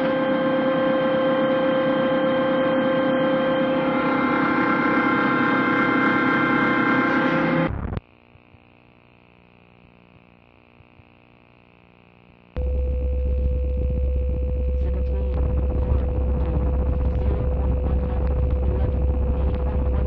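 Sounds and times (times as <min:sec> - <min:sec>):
loud electronic drone: 0:00.0 - 0:07.9, 0:12.6 - 0:20.0
low hum: 0:00.0 - 0:09.6, 0:12.4 - 0:20.0.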